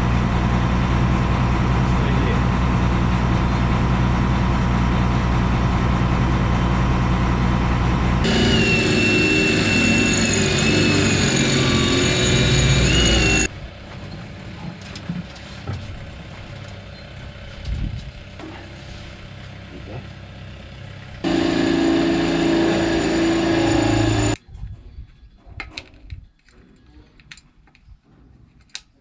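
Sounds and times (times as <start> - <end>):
diesel engine running: 0.0 - 14.7, 15.8 - 24.4
high wavering whine: 8.2 - 13.5, 21.2 - 24.4.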